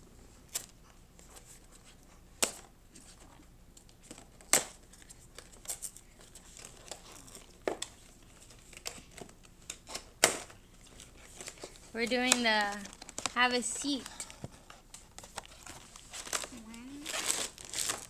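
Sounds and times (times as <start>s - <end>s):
packaging tearing and crinkling: 15.4s - 18.0s.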